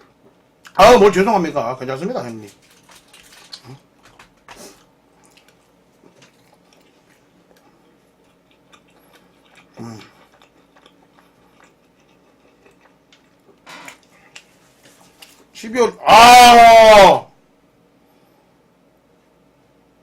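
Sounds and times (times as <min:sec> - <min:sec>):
person chewing: 0:02.4 - 0:15.6.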